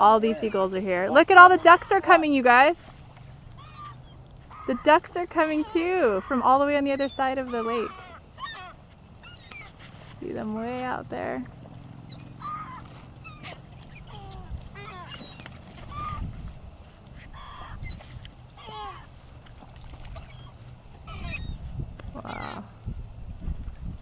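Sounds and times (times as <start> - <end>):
gulls calling: 0.0 - 22.9
steady low rumble: 20.6 - 24.0.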